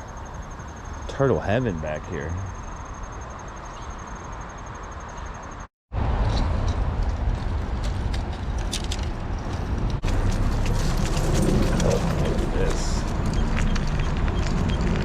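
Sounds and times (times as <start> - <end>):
insects trilling: 0.0 - 5.7
gear rattling and knocking: 8.7 - 15.0.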